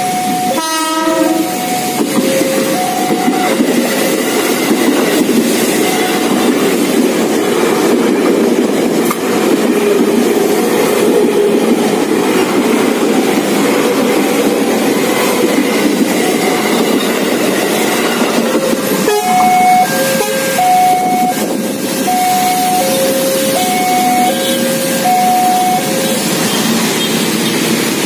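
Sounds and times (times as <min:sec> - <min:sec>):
two-tone level-crossing alarm: 0:00.0 - 0:06.6, 0:14.9 - 0:27.2
train wheels rumbling on rails: 0:00.0 - 0:28.0.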